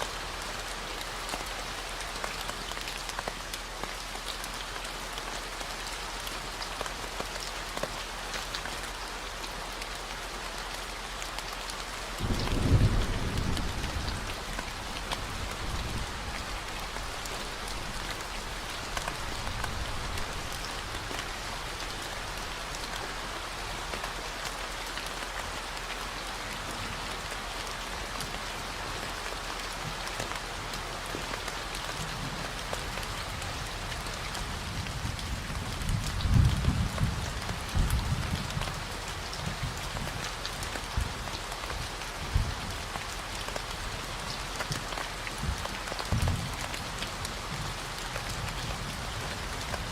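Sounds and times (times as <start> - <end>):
steady rain falling: 0.0 - 49.9
thunder rolling: 12.2 - 16.5.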